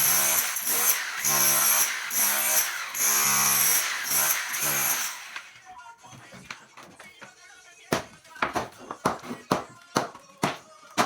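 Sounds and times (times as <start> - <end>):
power tool motor running: 0.0 - 5.6.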